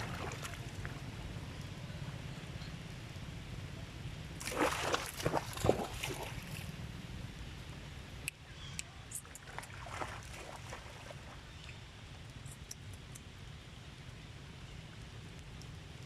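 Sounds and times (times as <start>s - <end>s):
water splashing and sloshing: 0.0s - 1.1s, 4.4s - 6.8s, 9.1s - 11.5s.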